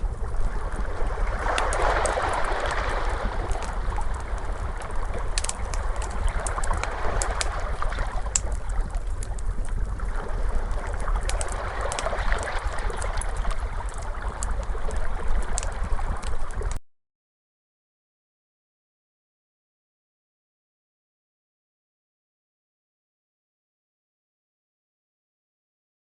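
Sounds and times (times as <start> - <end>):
ocean waves washing: 0.0 - 16.8
wood fire crackling: 0.0 - 16.8.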